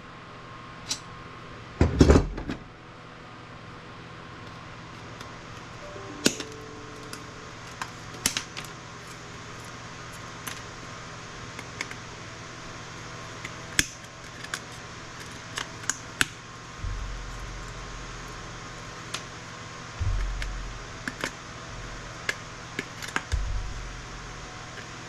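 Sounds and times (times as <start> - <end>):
steady low hum: 16.7 - 19.0, 20.0 - 24.8.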